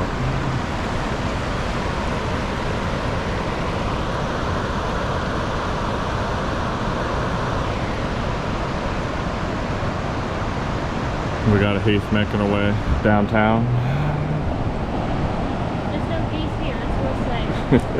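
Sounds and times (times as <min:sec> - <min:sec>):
river water flowing over rocks: 0:00.0 - 0:17.9.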